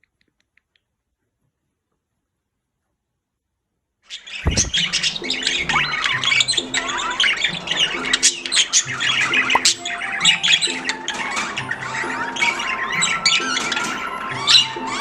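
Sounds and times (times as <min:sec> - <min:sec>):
background music with low notes: 0:04.1 - 0:15.0
birds chirping and squawking: 0:04.1 - 0:15.0.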